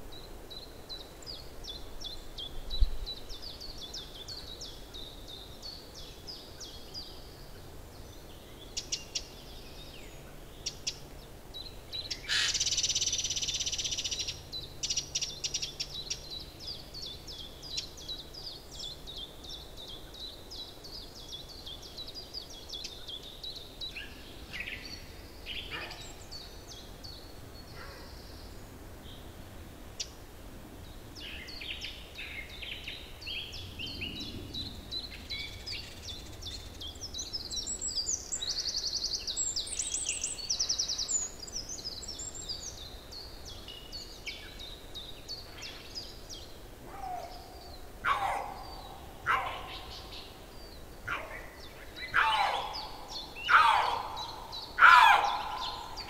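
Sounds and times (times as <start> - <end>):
small birds chirping: 0.0 - 56.0
harsh bird call: 46.9 - 50.2, 52.0 - 56.0.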